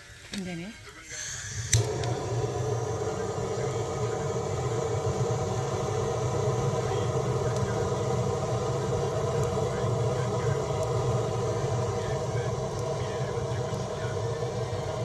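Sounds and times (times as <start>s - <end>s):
motor humming: 1.1s - 15.0s.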